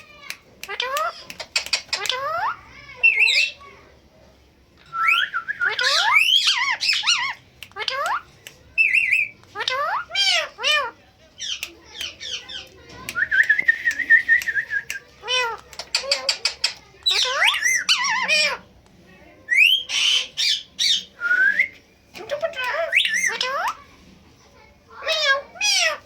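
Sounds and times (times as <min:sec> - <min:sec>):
parakeets squawking and chirping: 0:00.1 - 0:03.9, 0:05.0 - 0:12.9, 0:15.2 - 0:18.8, 0:19.5 - 0:21.2, 0:22.2 - 0:24.2, 0:24.9 - 0:26.0.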